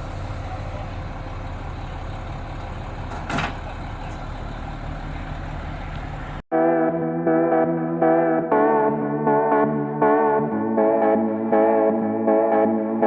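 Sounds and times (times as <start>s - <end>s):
brief air hiss: 0.0s - 0.9s
heavy vehicle engine running: 0.0s - 6.5s.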